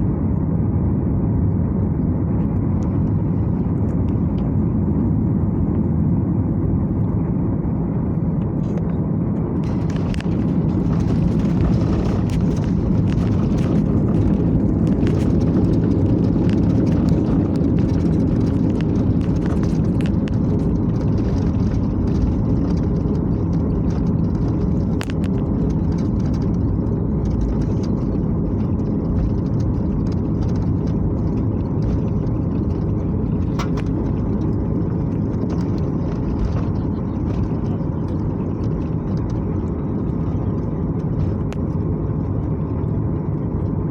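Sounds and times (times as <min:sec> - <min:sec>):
airliner cabin engine rumble: 0:00.0 - 0:43.9.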